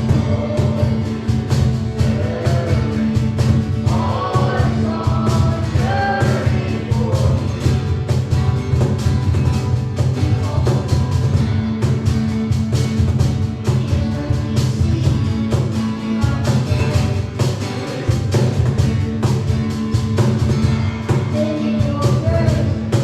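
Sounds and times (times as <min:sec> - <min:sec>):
person singing: 0:00.0 - 0:07.7, 0:21.3 - 0:23.0
drum beat: 0:00.0 - 0:23.0.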